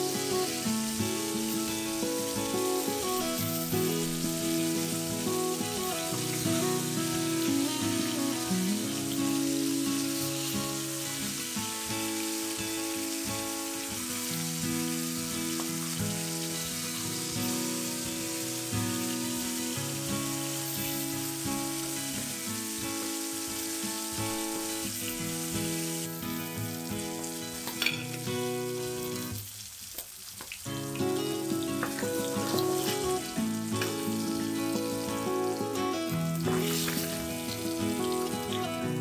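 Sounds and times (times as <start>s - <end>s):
background music of held notes: 0.0s - 13.8s, 30.8s - 39.0s
fish sizzling in oil: 0.0s - 39.0s.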